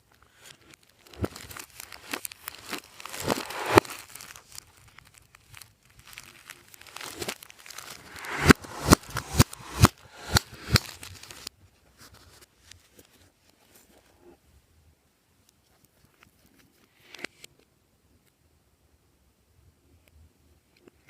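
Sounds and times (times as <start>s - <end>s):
sharp slime pops: 6.8s - 11.5s.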